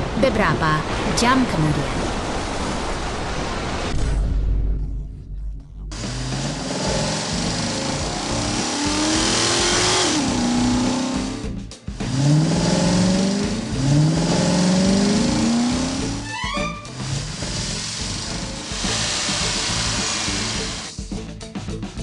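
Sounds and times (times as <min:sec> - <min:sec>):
cartoon car engine revving: 0:05.9 - 0:21.0.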